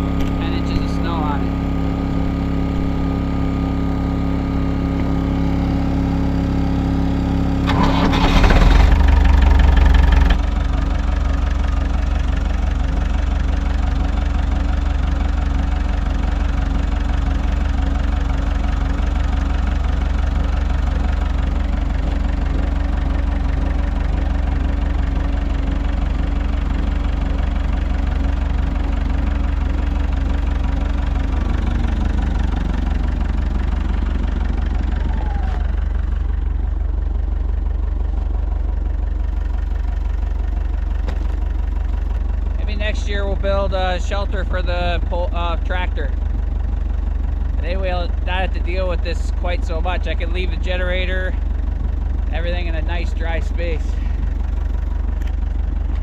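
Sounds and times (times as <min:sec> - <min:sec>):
tractor engine cranking: 0:00.0 - 0:03.6, 0:06.3 - 0:56.0
generator running: 0:00.0 - 0:56.0
tractor engine idling: 0:00.0 - 0:56.0.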